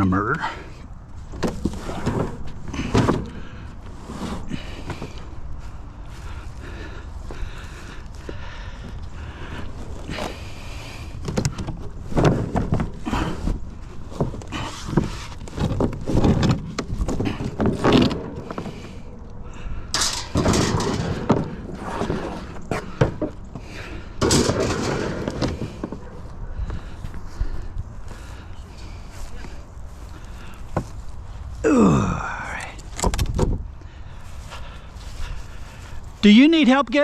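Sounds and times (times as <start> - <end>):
scrap metal clanking and clattering: 19.8 - 26.1
wire shelving rattling: 19.9 - 22.5.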